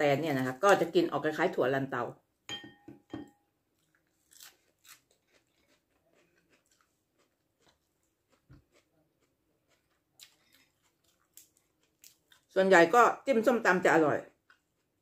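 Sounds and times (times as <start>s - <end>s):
crunching raw vegetables: 3.8s - 12.6s.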